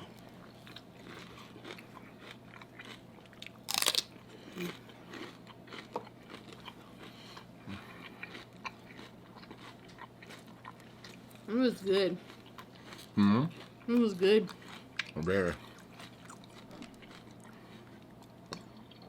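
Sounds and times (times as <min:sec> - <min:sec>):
celery crunching: 0:00.2 - 0:06.8.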